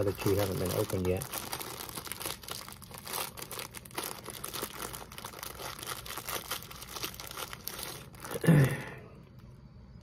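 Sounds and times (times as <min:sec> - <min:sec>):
plastic wrapper crinkling: 0:00.0 - 0:08.7.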